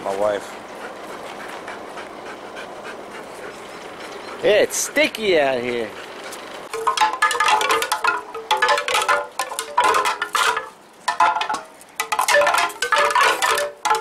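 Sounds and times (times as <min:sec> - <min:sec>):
wind chimes ringing: 0:06.7 - 0:14.0.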